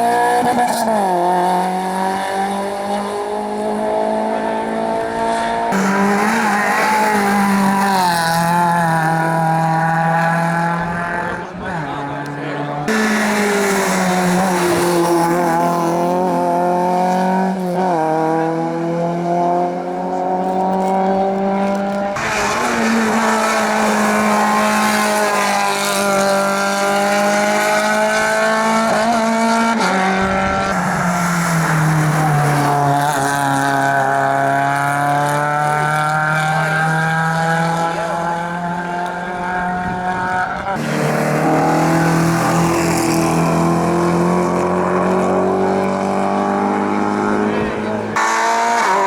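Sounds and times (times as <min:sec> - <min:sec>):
racing car engines at full throttle: 0:00.0 - 0:49.0.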